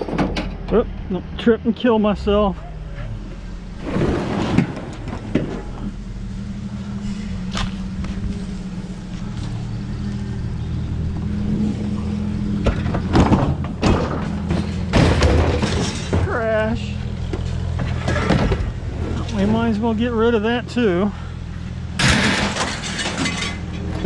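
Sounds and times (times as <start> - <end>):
scrap metal clanking and thudding: 0.0 - 0.8, 2.8 - 8.6, 11.2 - 19.8, 21.2 - 24.0
engine idling: 0.0 - 24.0.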